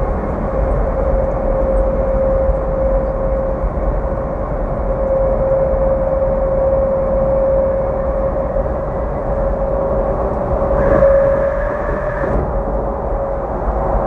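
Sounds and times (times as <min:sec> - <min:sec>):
vehicle running hum: 0:00.0 - 0:14.0
higher tone: 0:07.2 - 0:12.7.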